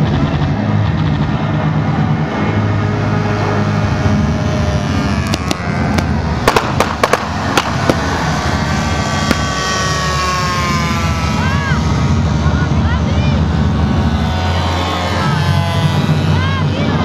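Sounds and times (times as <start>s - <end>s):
model aircraft engines running: 0.0s - 17.0s
sharp cracks: 5.2s - 10.8s.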